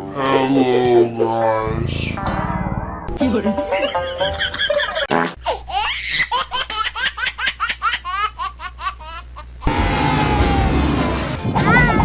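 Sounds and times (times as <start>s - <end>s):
child laughing: 3.8s - 9.6s.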